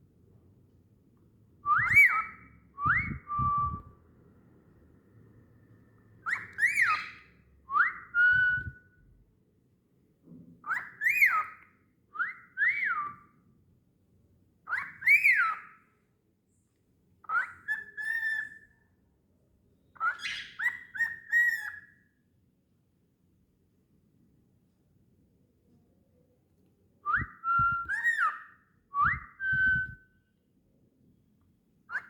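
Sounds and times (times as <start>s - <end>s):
cockatiel whistling: 1.7s - 3.9s, 6.2s - 8.9s, 10.6s - 13.3s, 14.7s - 15.8s, 17.2s - 18.7s, 20.0s - 22.0s, 27.1s - 30.0s.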